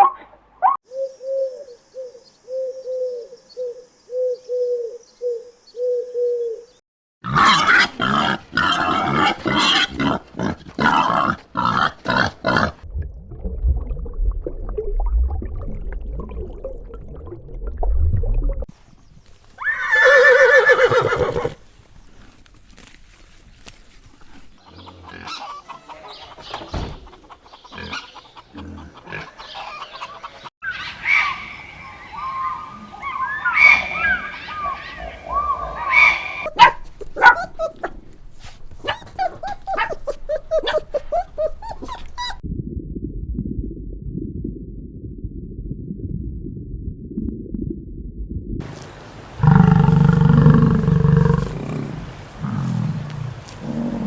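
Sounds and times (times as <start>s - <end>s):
farm animal calls: 19.7s - 21.6s, 24.6s - 26.5s, 35.9s - 42.4s, 48.7s - 54.0s
low rumble: 42.4s - 48.6s.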